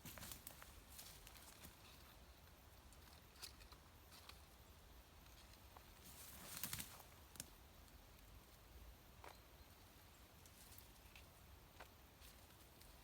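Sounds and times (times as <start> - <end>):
twigs crackling underfoot: 0.0 - 2.2, 5.2 - 7.6.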